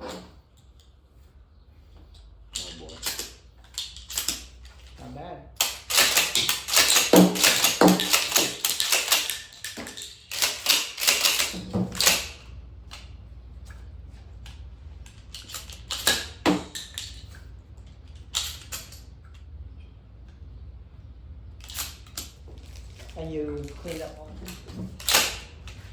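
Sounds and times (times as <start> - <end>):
shotgun action clicks and clacks: 5.6 - 12.4, 15.3 - 17.3, 23.9 - 25.5.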